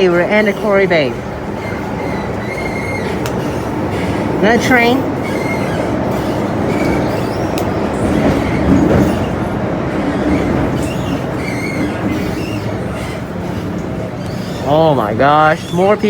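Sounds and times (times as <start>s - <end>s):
train rumbling on track: 0.0s - 16.0s
faint wheel squeals: 1.6s - 4.1s, 5.2s - 9.4s, 10.2s - 16.0s.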